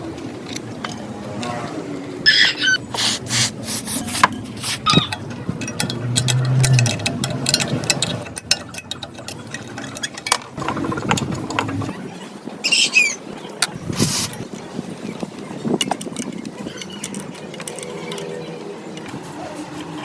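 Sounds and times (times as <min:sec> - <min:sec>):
short squeak: 0:02.3 - 0:03.5, 0:04.6 - 0:05.2
hand tool scraping metal: 0:02.3 - 0:11.9
sharp clicks and knocks: 0:02.9 - 0:12.0.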